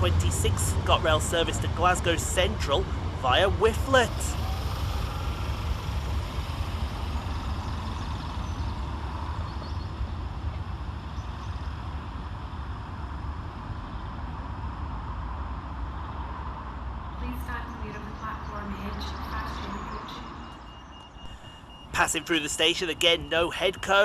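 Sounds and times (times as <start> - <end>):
train wheels rumbling: 0.0 - 12.1.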